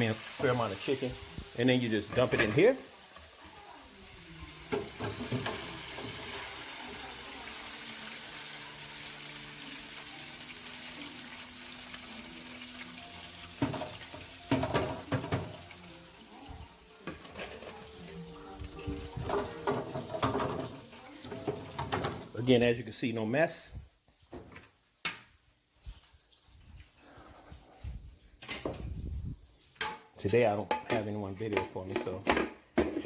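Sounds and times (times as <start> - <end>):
cookware clanking: 1.9 - 3.3, 4.6 - 6.6, 13.4 - 15.8, 17.0 - 22.4.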